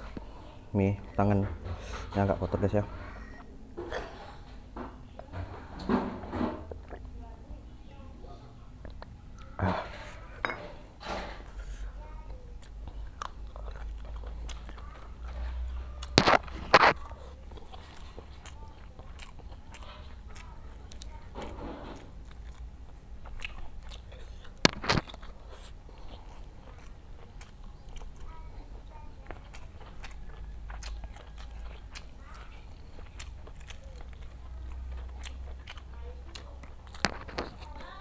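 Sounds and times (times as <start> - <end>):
chewing and wet mouth smacks: 6.7 - 7.1, 12.6 - 37.9.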